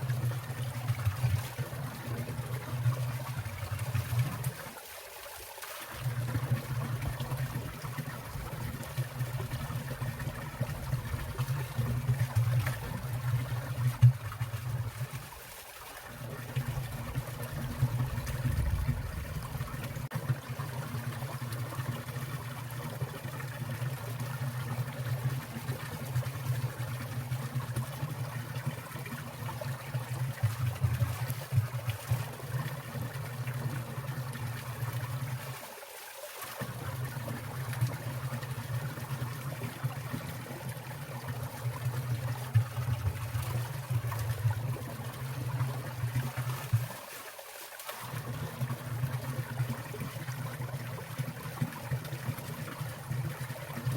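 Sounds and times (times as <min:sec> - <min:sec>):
stream trickling and splashing: 0:00.0 - 0:53.9
steady low rumble: 0:17.6 - 0:20.0.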